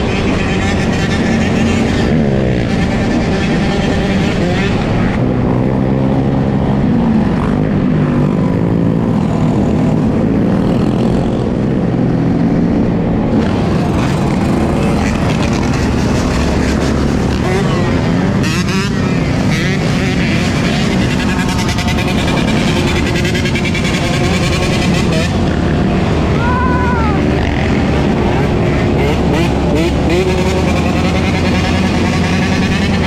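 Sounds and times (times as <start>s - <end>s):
dirt bike engine revving: 13.3s - 33.0s.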